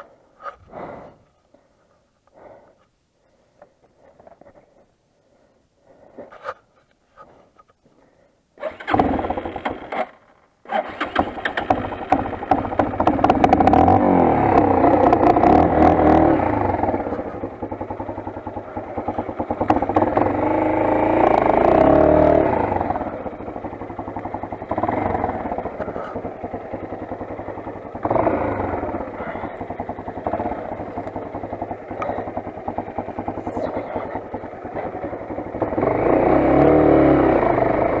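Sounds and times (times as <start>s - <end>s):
dirt bike engine starting and revving: 8.6s - 38.0s.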